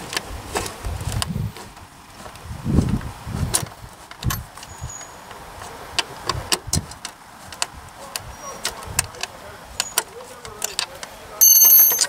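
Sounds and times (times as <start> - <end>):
small parts clicking and knocking: 8.6 - 12.0.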